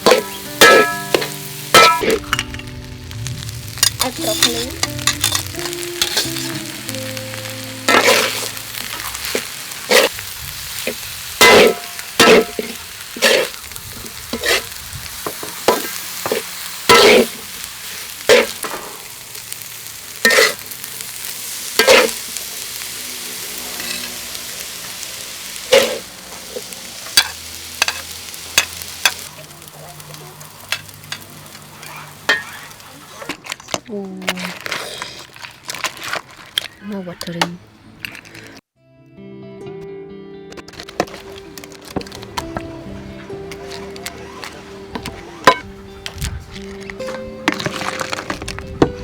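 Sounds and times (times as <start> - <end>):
spatula scraping and knocking pan: 0.0 - 7.0, 7.9 - 10.2, 11.4 - 17.5, 18.3 - 19.0, 20.3 - 20.6, 21.8 - 22.4, 25.7 - 29.3, 43.4 - 48.6
food sizzling in a hot pan: 0.0 - 33.3.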